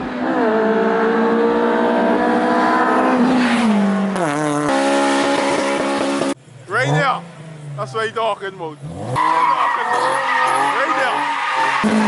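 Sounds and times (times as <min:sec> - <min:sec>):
car engine revving hard: 0:00.0 - 0:07.2, 0:08.8 - 0:12.0.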